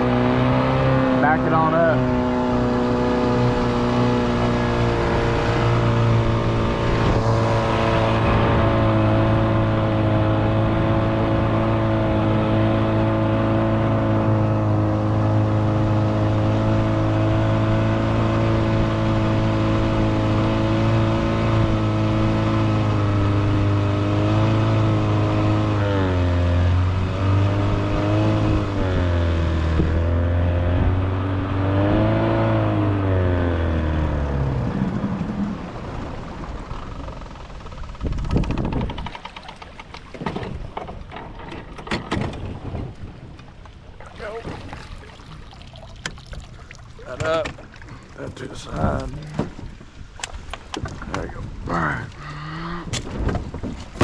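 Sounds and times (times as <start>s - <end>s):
vehicle engine revving: 0.0s - 35.8s.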